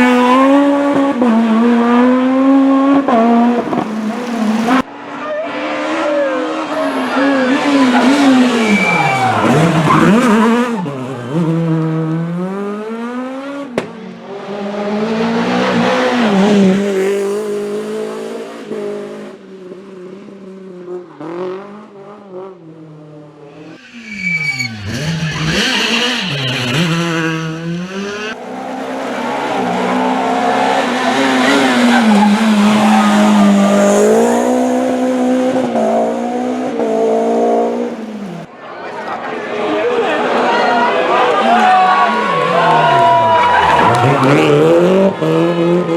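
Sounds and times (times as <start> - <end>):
rally car engines revving: 0.0 - 45.9.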